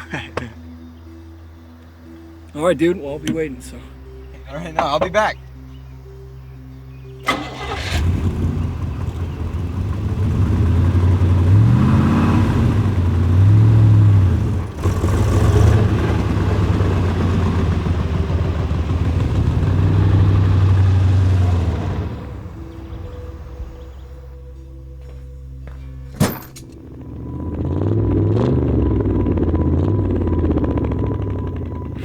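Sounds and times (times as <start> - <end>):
car engine revving: 7.2 - 24.1, 26.2 - 32.0.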